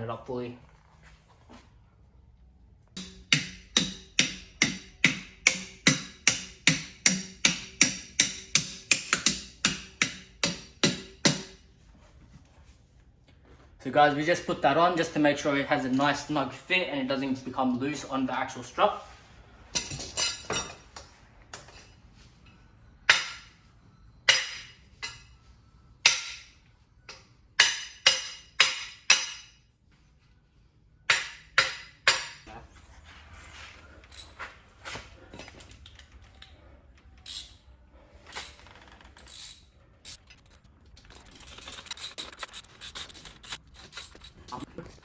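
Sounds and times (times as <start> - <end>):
metal tools clinking and clanking: 19.7 - 23.5, 34.0 - 45.0.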